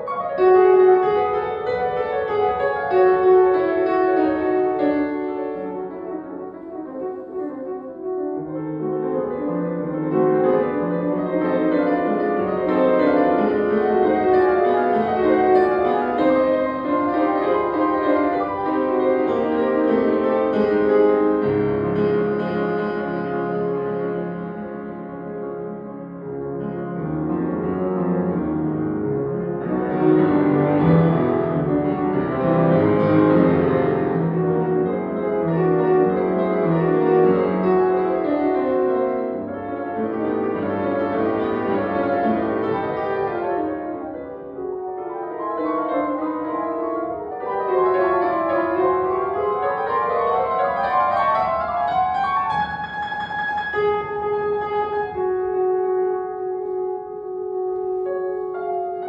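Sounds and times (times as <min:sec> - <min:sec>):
solo classical piano: 0:00.0 - 0:59.0.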